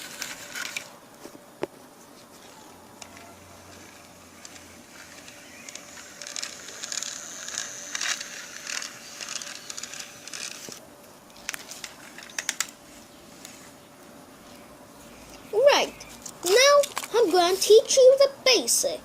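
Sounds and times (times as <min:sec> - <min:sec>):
toy trains rattling on track: 0:00.0 - 0:00.9, 0:03.0 - 0:10.8, 0:16.4 - 0:17.8.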